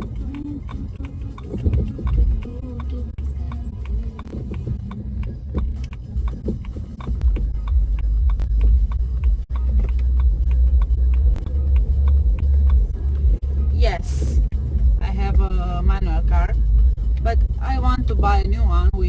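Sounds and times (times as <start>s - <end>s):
car cabin rumble: 0.0s - 19.0s.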